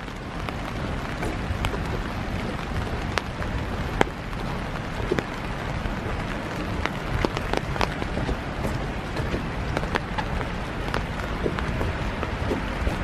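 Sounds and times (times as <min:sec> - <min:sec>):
raindrops ticking: 0:00.0 - 0:13.0
steady rain falling: 0:00.0 - 0:13.0.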